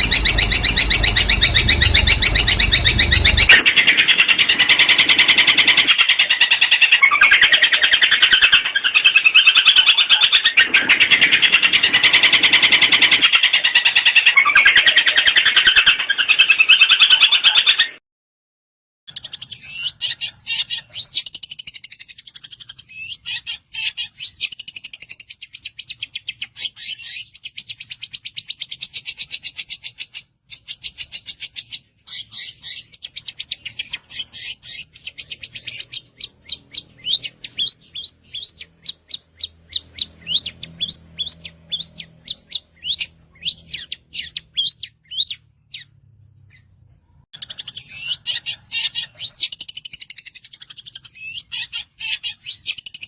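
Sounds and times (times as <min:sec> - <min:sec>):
bird singing sharp notes: 0:00.0 - 0:05.8.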